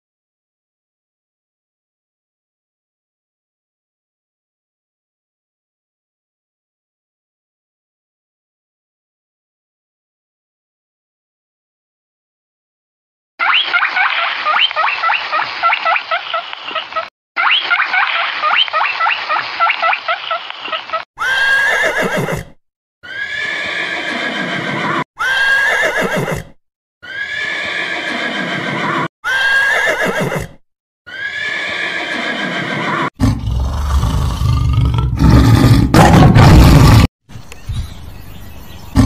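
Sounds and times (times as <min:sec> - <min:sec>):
horses whinnying: 0:21.2 - 0:34.6
tiger growling: 0:33.2 - 0:37.1.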